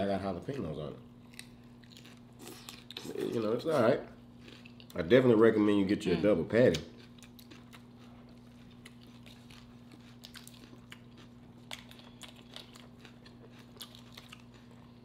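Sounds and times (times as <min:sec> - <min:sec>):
steady low hum: 0:00.0 - 0:15.0
person chewing food: 0:01.2 - 0:03.4, 0:04.2 - 0:05.0, 0:06.7 - 0:15.0.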